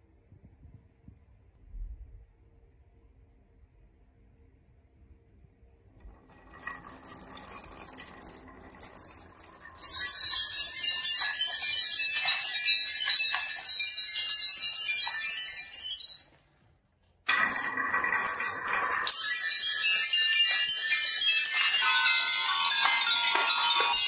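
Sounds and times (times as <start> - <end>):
marbles rolling on wood: 6.0 - 16.4, 17.3 - 24.0
marbles clicking together: 6.1 - 16.4, 17.3 - 24.0.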